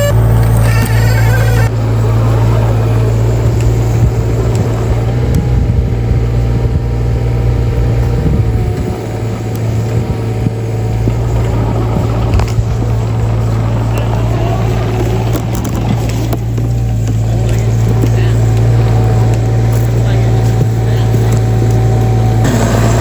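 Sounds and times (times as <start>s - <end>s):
heavy machinery engine running: 0.0s - 23.0s.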